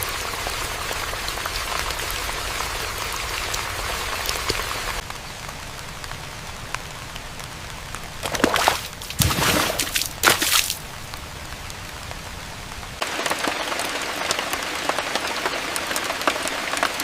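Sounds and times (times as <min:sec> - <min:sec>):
rain falling: 0:00.0 - 0:17.0
splashing drops: 0:08.2 - 0:10.9.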